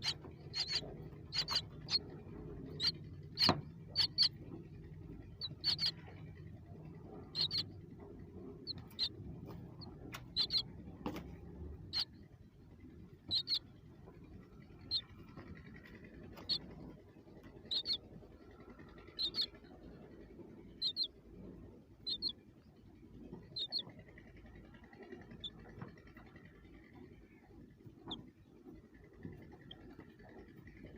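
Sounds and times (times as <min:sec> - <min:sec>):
young birds peeping: 0:00.0 - 0:26.4.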